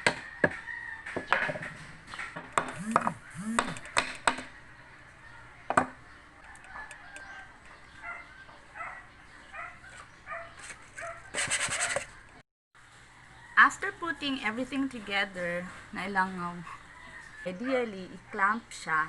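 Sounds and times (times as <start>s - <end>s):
chickens clucking: 0.3s - 13.5s.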